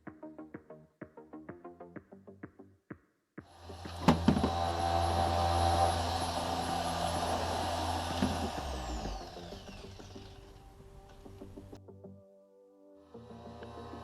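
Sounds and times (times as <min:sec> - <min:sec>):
motor spinning down: 0:03.5 - 0:11.8, 0:13.2 - 0:14.0
power tool motor whining: 0:03.6 - 0:11.8, 0:13.3 - 0:14.0.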